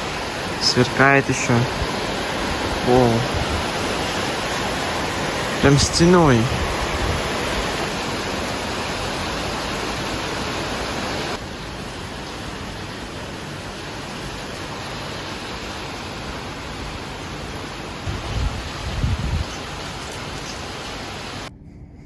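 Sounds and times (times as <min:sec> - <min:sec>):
heavy rain pouring: 0:00.0 - 0:21.5.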